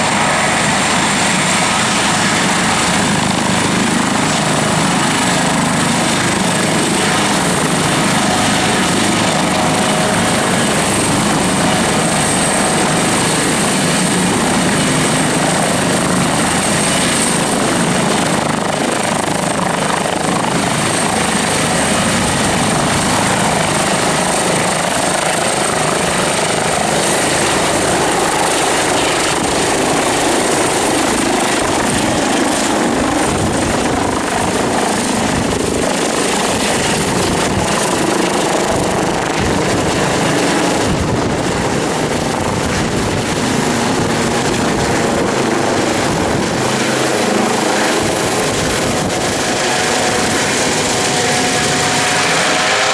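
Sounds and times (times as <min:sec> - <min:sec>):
helicopter rotor noise: 0:00.0 - 0:52.9
high turbine whine: 0:00.0 - 0:52.9.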